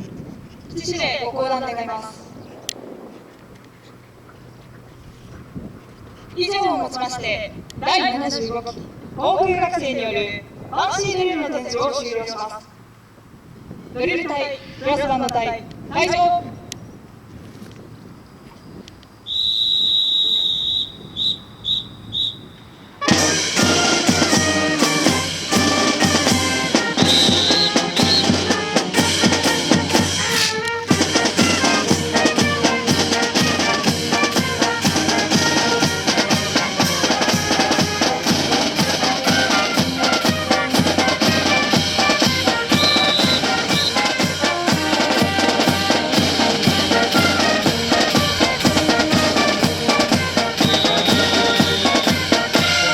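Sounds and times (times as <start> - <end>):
whistle blasts: 19.2 - 38.0, 38.8 - 44.5, 46.9 - 52.9
brass band with drums: 22.9 - 52.9.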